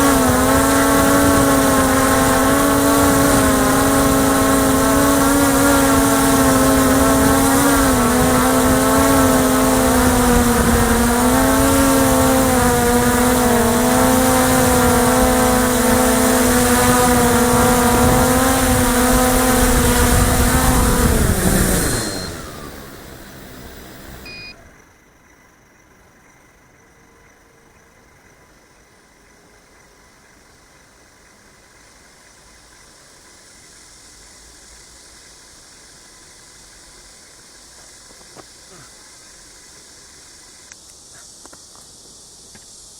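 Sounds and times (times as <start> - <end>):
drone motors humming: 0.0 - 25.0.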